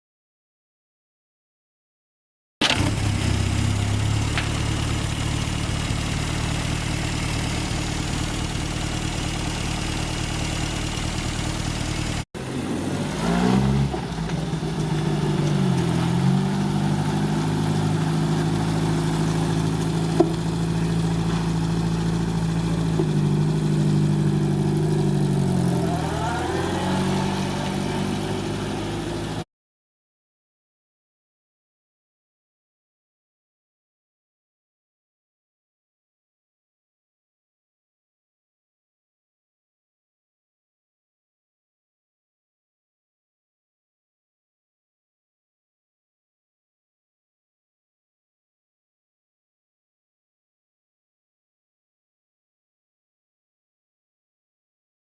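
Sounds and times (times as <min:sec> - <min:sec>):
car engine idling and revving: 0:02.6 - 0:29.4.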